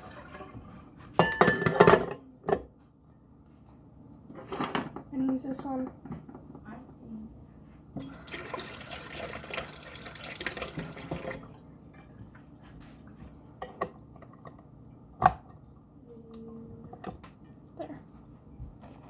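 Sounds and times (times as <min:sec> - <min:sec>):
kitchen tap running into sink: 0:08.0 - 0:12.2.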